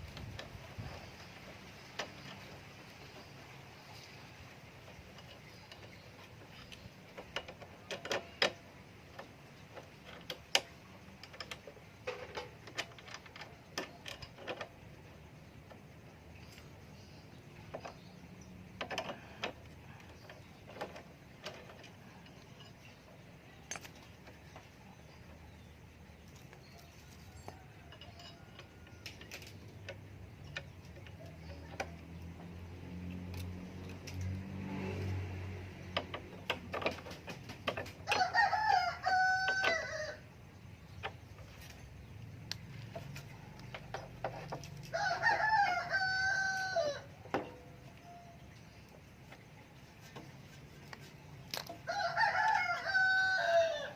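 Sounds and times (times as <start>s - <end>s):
light clicks and knocks: 0.0s - 52.8s
rooster crowing: 38.0s - 40.3s, 44.9s - 47.2s, 51.8s - 53.9s.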